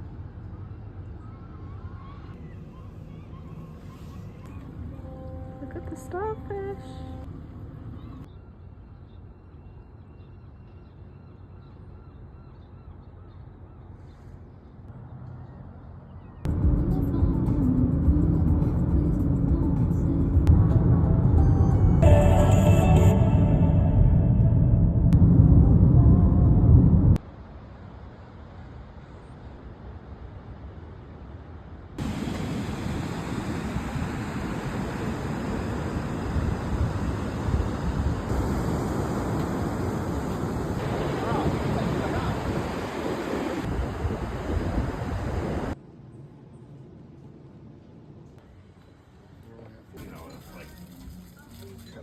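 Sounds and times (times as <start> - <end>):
wind: 0.0 - 52.0
low steady rumble: 16.5 - 28.1
surf: 32.0 - 45.8.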